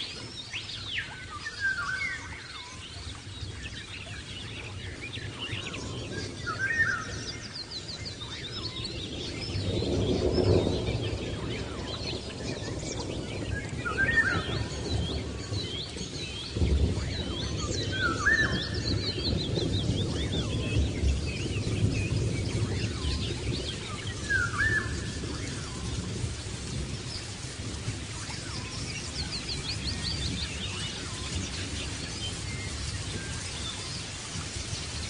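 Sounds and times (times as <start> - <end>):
birds chirping and whistling: 0.0 - 35.0.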